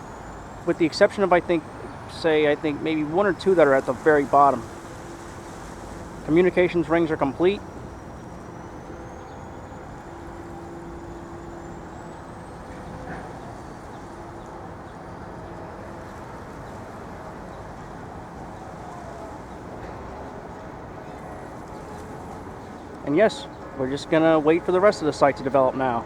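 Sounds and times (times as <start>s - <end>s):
distant traffic hum: 0.0s - 26.0s
faint engine drone: 0.0s - 26.0s.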